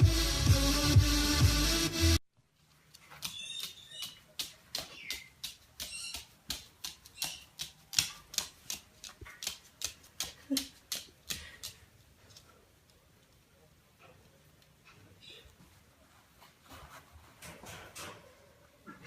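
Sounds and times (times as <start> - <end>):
bird chirps: 3.2 - 6.4, 7.1 - 7.6.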